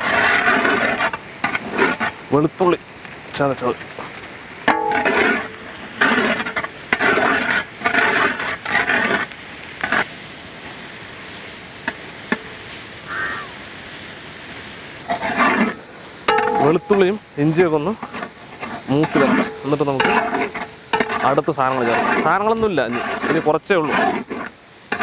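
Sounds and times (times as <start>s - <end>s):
ladle scraping and stirring: 0.0s - 2.6s, 3.4s - 10.2s, 14.5s - 25.0s
food sizzling in oil: 0.0s - 25.0s.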